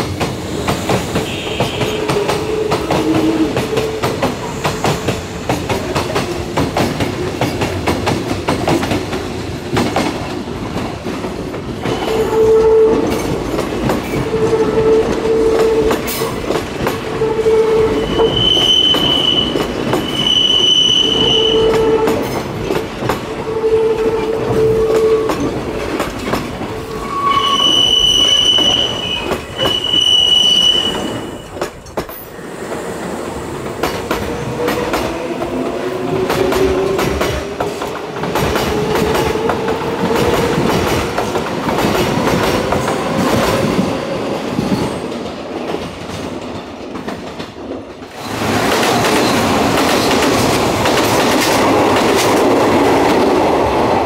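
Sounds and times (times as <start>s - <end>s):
train passing close by: 0.0s - 54.0s
high-pitched squeals: 17.4s - 22.1s, 26.8s - 31.7s.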